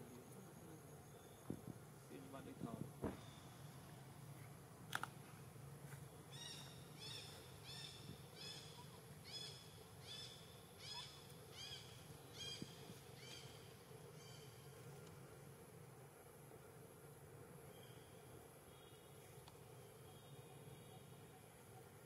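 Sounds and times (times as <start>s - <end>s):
sharp click: 4.9s - 5.2s
bird calling: 6.1s - 14.8s.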